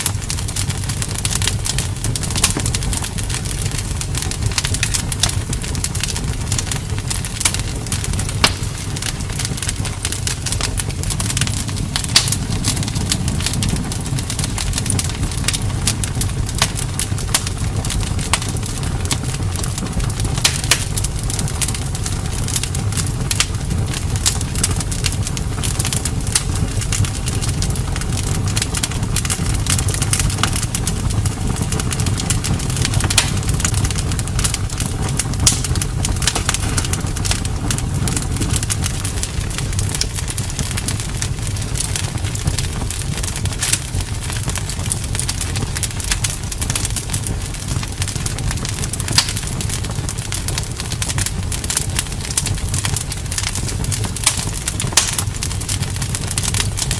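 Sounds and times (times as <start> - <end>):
bonfire crackling and popping: 0.0 - 56.9
low rumble: 0.9 - 24.0.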